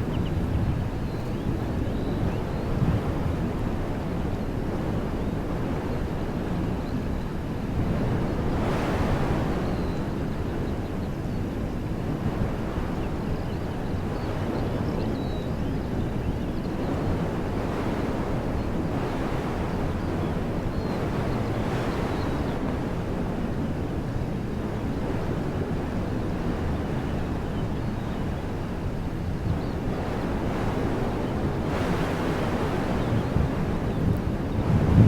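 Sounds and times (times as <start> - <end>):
wind rumble on microphone: 0.0 - 35.0
wind blowing through trees: 25.7 - 35.0.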